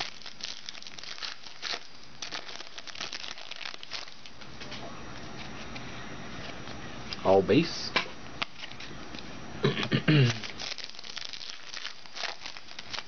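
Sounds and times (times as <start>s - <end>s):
foil pack crinkling: 0.0s - 4.4s, 10.2s - 13.0s.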